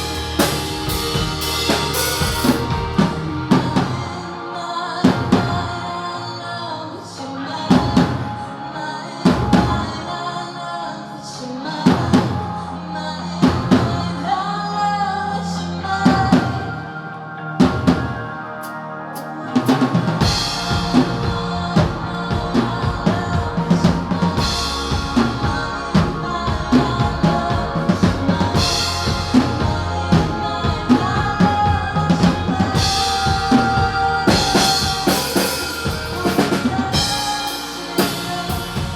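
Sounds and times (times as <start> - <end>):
drum kit beat: 0.0 - 4.2, 19.6 - 38.9
sustained pitched instruments: 0.0 - 6.3.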